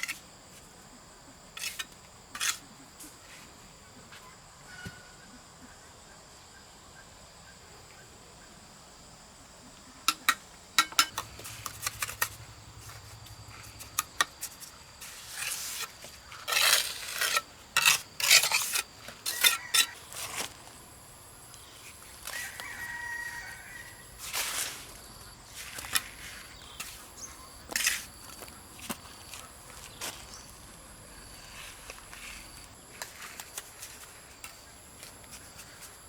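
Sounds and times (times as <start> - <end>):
insect chirping: 6.4 - 36.0
sharp taps and clinks: 10.1 - 12.4.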